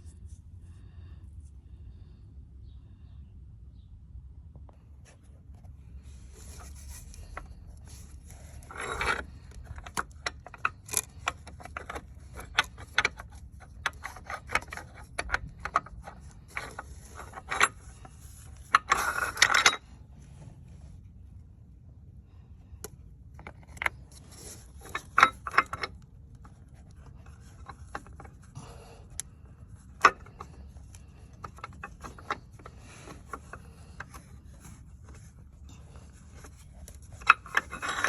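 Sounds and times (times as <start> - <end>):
metal tools clinking and scraping: 6.3 - 19.9, 23.4 - 38.0.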